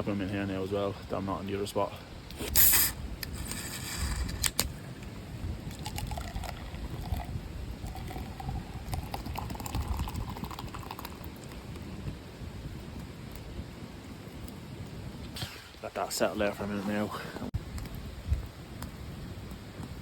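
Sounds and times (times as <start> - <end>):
liquid pouring into container: 5.7 - 11.9.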